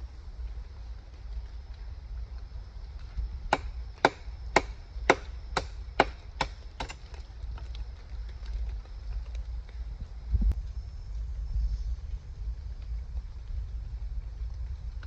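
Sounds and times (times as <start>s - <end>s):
sharp chopping strikes: 3.5s - 7.0s.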